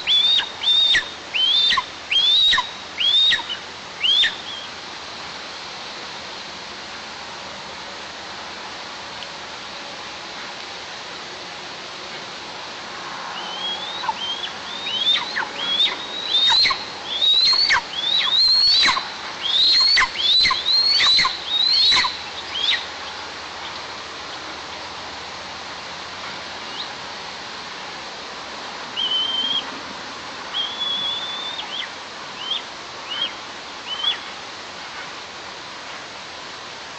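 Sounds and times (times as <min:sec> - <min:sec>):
short whistled calls: 0:00.0 - 0:04.7, 0:13.4 - 0:22.9, 0:29.0 - 0:29.7, 0:30.5 - 0:34.3
young eagle calling: 0:00.0 - 0:04.7, 0:13.4 - 0:23.8, 0:29.0 - 0:29.7, 0:30.5 - 0:34.3
steady background hiss: 0:00.0 - 0:36.9.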